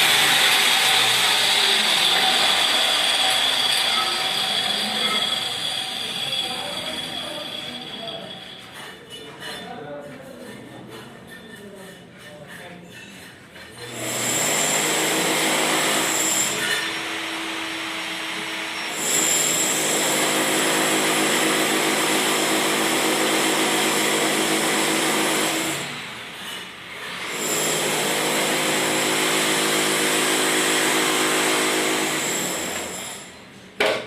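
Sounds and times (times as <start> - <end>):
handheld power tool running: 0.0 - 7.6, 13.9 - 26.0, 27.0 - 33.3.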